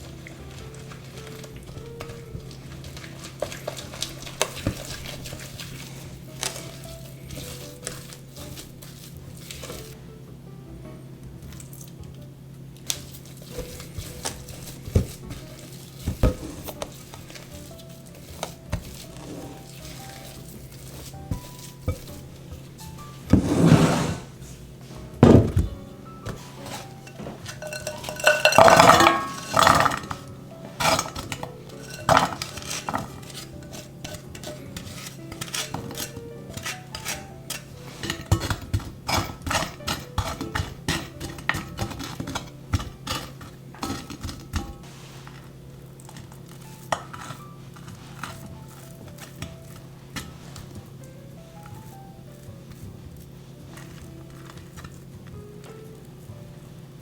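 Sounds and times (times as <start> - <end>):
utensil scraping a mixing bowl: 0.0 - 10.0, 13.2 - 24.8, 26.2 - 51.0.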